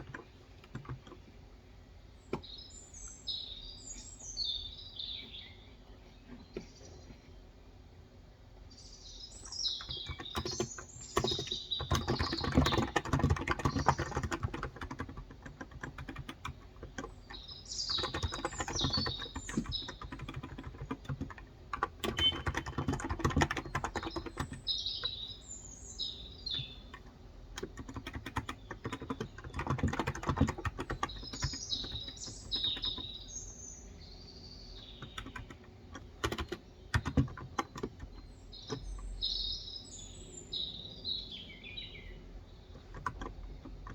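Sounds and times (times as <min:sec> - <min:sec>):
typing on a keyboard: 0:00.0 - 0:01.2, 0:09.5 - 0:25.2, 0:26.5 - 0:33.2, 0:34.8 - 0:39.3, 0:42.7 - 0:43.9
small birds chirping: 0:00.0 - 0:43.9.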